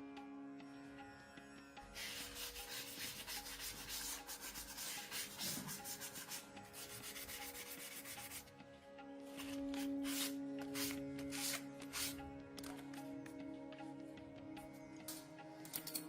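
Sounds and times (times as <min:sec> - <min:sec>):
hand sanding strokes: 0:02.0 - 0:08.5, 0:09.3 - 0:12.2.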